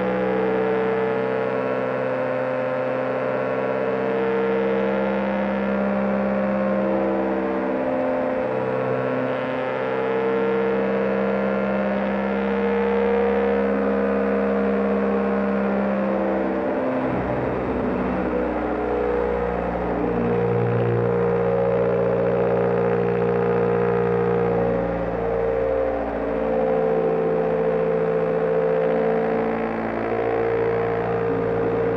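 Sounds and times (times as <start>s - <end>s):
motorcycle engine running: 12.0s - 31.9s.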